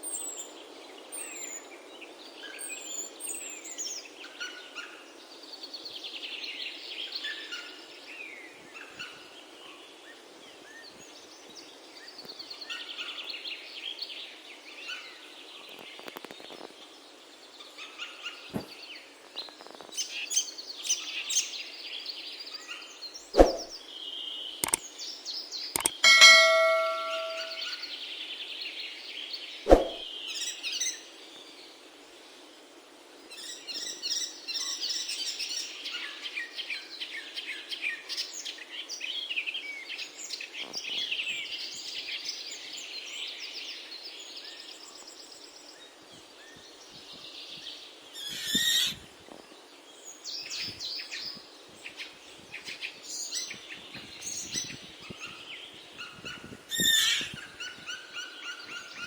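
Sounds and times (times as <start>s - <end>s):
sharp click: 23.4s - 23.7s, 25.8s - 27.6s, 29.7s - 30.0s.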